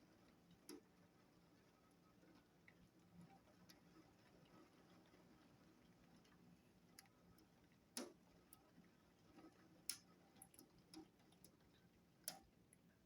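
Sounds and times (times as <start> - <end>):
faint irregular clicks: 0.6 - 0.9, 6.2 - 8.8, 9.8 - 12.9.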